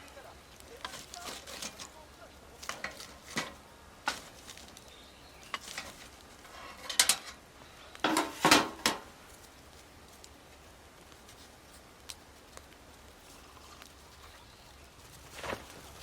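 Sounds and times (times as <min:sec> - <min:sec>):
metal camp gear clinking: 0:00.0 - 0:02.0, 0:02.6 - 0:07.4.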